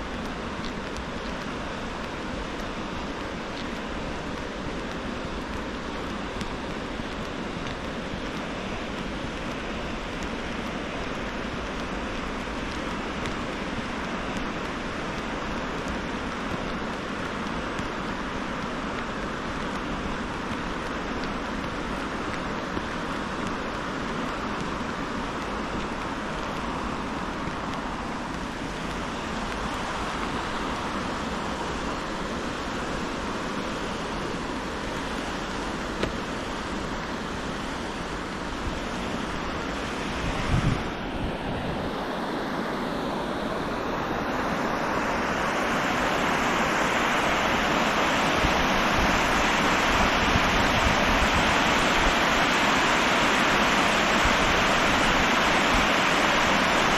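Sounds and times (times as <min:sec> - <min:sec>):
flowing river water: 0:00.0 - 0:56.9.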